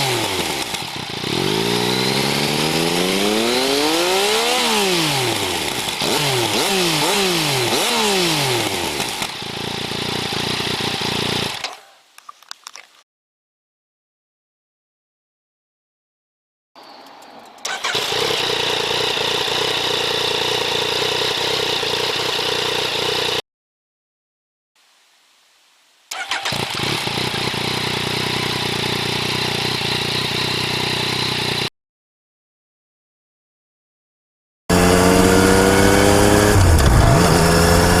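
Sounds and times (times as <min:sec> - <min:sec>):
motorcycle engine idling: 0:08.9 - 0:11.6, 0:17.2 - 0:23.4, 0:26.2 - 0:31.7
motorcycle starter cranking: 0:17.1 - 0:20.6, 0:26.1 - 0:29.4.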